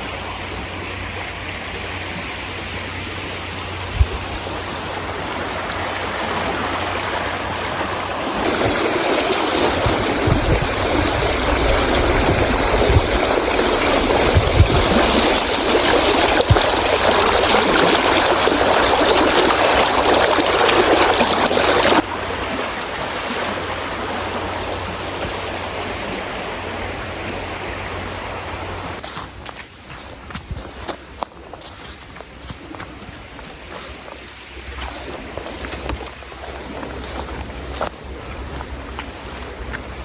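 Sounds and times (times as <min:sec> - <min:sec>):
heavy rain falling: 0:22.0 - 0:29.1, 0:32.4 - 0:40.0.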